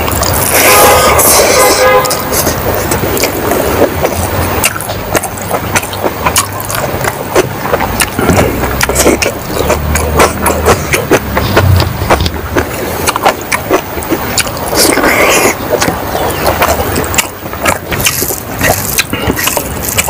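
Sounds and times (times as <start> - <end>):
wet chewing and lip-smacking: 0.0 - 0.6, 1.2 - 20.0
low rumble: 0.0 - 13.2
rice squishing between fingers: 1.4 - 20.0.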